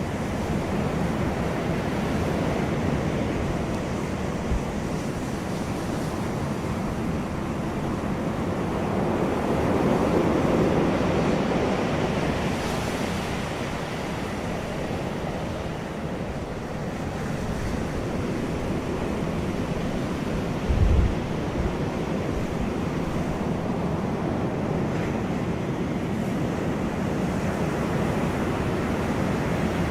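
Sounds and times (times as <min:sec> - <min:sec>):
wind buffeting microphone: 0:00.0 - 0:29.9
wind blowing: 0:17.3 - 0:24.3.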